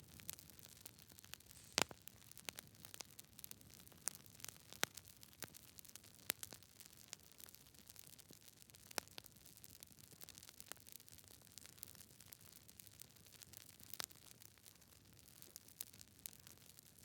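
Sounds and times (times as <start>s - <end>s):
campfire crackling: 0.0s - 12.0s
fire popping: 0.0s - 17.0s
faint hiss: 1.4s - 2.1s.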